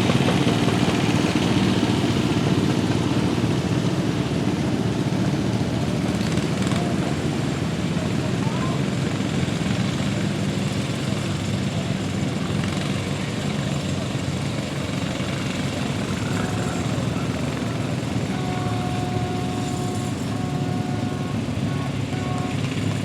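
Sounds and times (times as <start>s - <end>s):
tractor engine running: 0.0s - 23.0s
thin whining tones: 14.4s - 23.0s.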